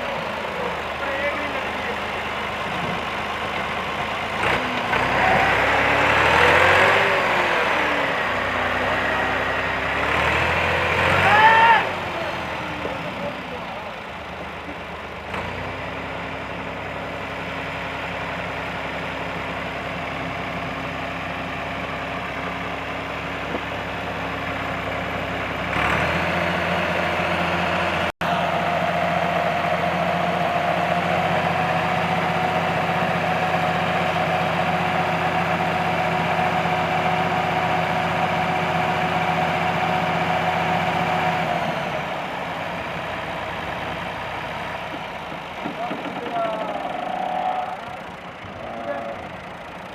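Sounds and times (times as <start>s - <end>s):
tractor diesel engine idling and revving: 0.0s - 49.9s.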